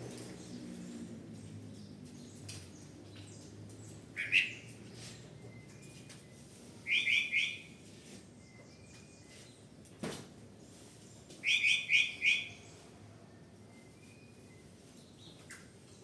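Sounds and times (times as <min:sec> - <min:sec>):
bird chirping: 0:03.2 - 0:04.7.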